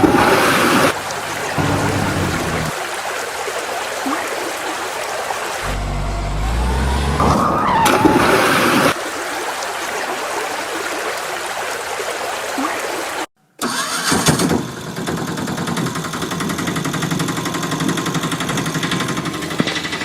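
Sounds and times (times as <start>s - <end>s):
vehicle engine running: 0.9s - 2.7s, 5.6s - 7.5s, 14.8s - 20.0s.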